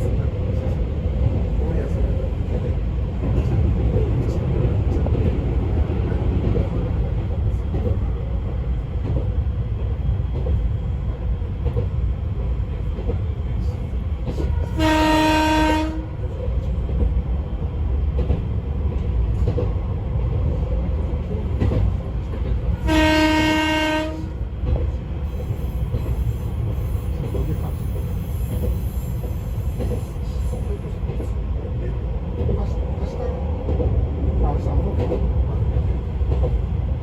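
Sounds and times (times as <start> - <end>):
train wheels rumbling on track: 0.0 - 37.0
train horn blast: 14.5 - 16.3, 22.8 - 24.5.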